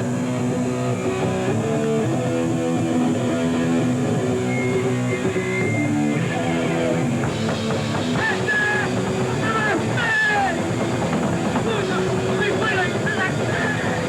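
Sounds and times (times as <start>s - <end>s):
bass guitar: 0.0s - 14.0s
distorted electric guitar riff: 0.0s - 14.0s.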